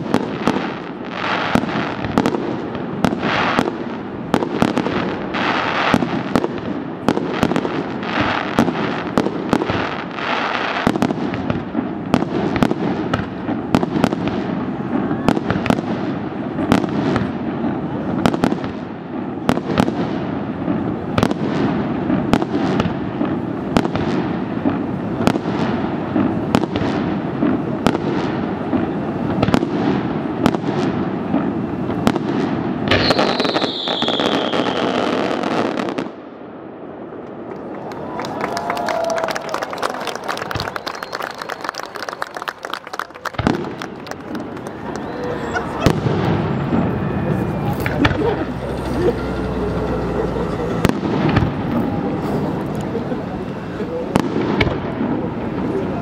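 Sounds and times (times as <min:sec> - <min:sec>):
fireworks fountain hissing: 0:00.0 - 0:36.2, 0:36.8 - 0:56.0
fireworks bangs: 0:00.0 - 0:56.0
falling firework whistle: 0:32.9 - 0:36.0, 0:38.0 - 0:52.8.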